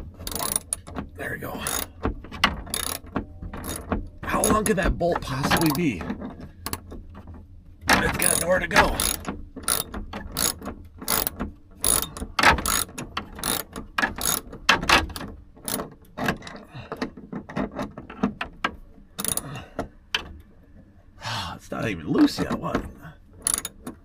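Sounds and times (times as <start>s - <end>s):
ratchet wrench clicking: 0.2s - 0.9s, 1.6s - 1.9s, 2.6s - 4.7s, 8.1s - 14.5s, 15.6s - 15.8s, 19.2s - 19.5s, 23.4s - 23.9s.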